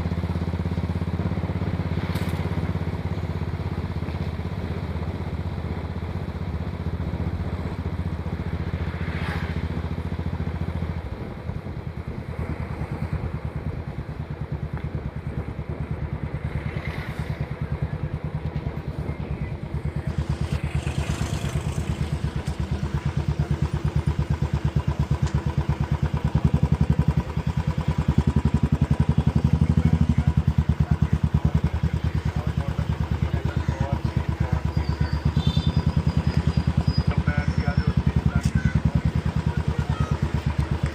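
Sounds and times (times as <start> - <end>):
motorcycle engine thumping: 12.6 - 40.9.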